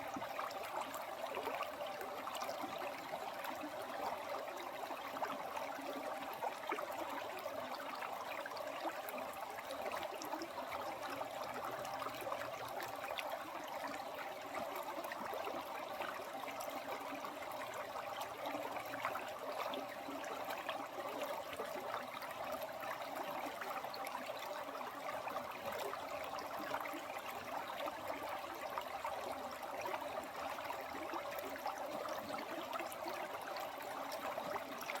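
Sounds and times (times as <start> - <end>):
stream water babbling: 0.0 - 35.0.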